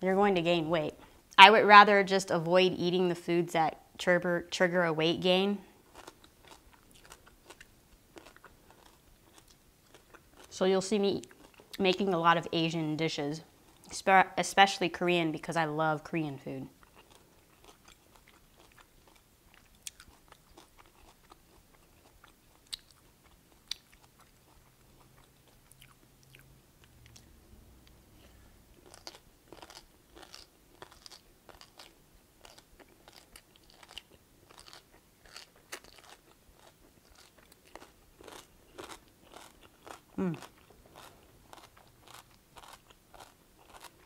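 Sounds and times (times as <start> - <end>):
chewing and crunching: 5.8 - 10.6, 11.2 - 11.8, 16.7 - 27.3, 28.7 - 44.0.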